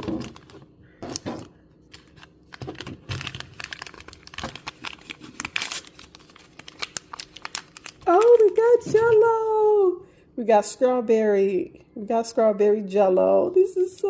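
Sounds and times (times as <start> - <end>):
packaging crinkling and tearing: 0.0 - 9.2.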